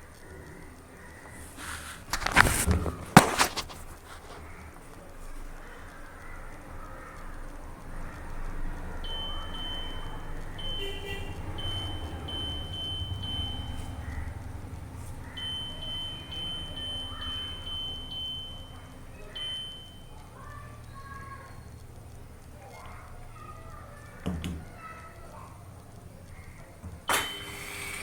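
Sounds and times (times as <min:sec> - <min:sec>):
washing machine short high beeps: 0:09.0 - 0:13.9, 0:15.4 - 0:20.2.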